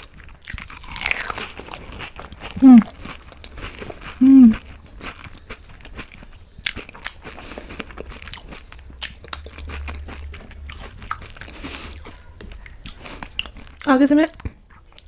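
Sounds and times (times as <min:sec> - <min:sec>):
crunching and chewing food: 0:00.0 - 0:15.0
person humming mmm: 0:02.6 - 0:03.0, 0:04.2 - 0:04.6.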